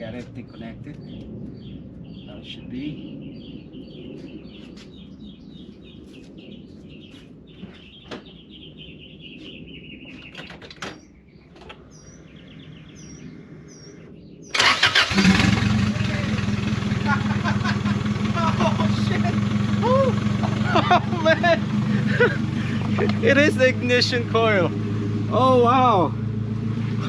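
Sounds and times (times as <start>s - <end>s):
birds chirping: 0.0s - 27.0s
car engine starting and idling: 14.5s - 27.0s.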